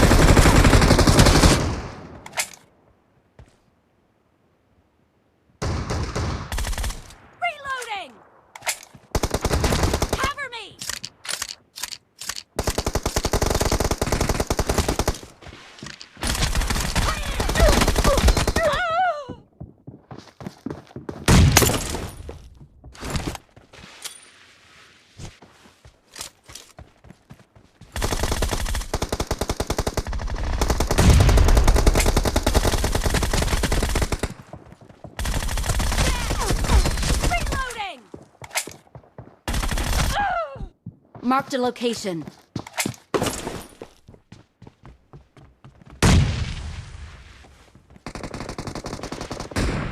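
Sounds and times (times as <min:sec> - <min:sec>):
video game automatic gunfire: 0:28.0 - 0:34.4, 0:35.2 - 0:37.7.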